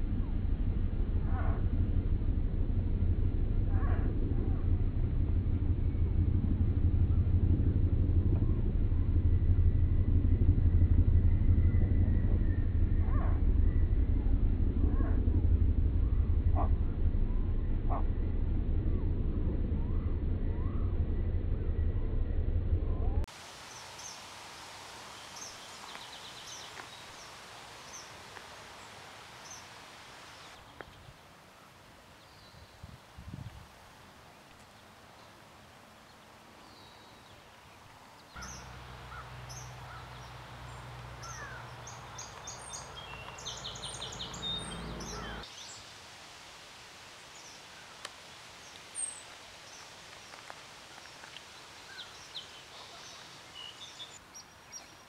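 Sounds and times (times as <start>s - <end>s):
steady low rumble: 0.0s - 23.3s, 37.8s - 45.5s
outdoor hiss: 23.3s - 55.0s
bird chirps and trill: 38.4s - 45.5s
faint short bird calls: 41.2s - 42.4s, 43.3s - 45.5s.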